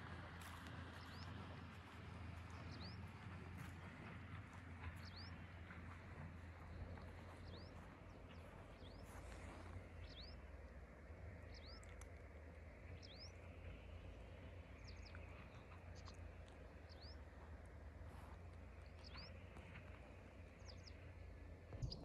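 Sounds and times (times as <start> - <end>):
faint low rumble: 0.0 - 22.0
bird chirping: 4.8 - 10.5, 11.3 - 12.2, 12.9 - 13.8, 14.4 - 17.5, 18.1 - 22.0.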